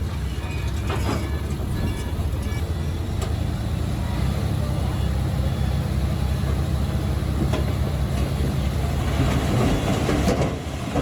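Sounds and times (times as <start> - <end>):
metallic clattering of tracks: 0.0 - 3.4, 7.4 - 11.0
bulldozer diesel engine running: 0.0 - 11.0.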